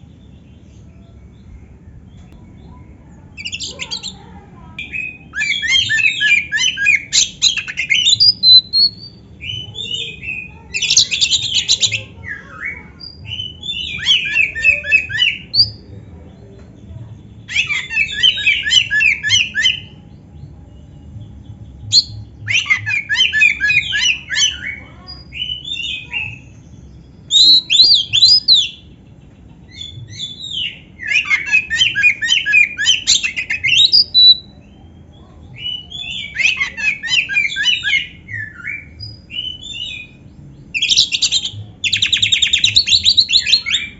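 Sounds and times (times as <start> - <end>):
bird singing with trills: 0.0 - 43.9.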